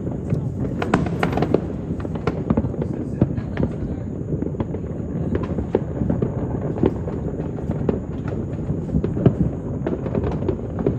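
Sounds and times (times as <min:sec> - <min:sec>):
distant fireworks rumble: 0:00.0 - 0:10.9
firecracker pops: 0:00.0 - 0:10.9.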